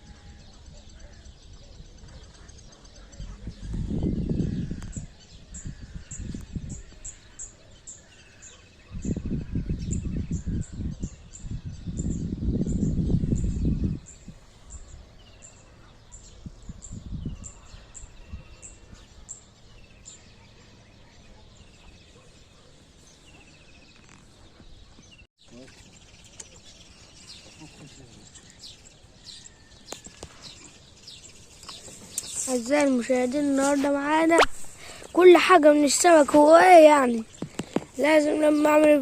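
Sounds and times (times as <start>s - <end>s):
small birds singing trills: 0.0s - 39.0s
high bird chirps: 21.3s - 39.0s.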